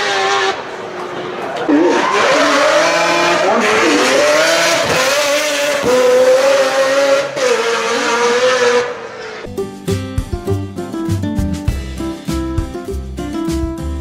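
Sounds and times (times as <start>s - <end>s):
car engine at full throttle: 0.0s - 9.4s.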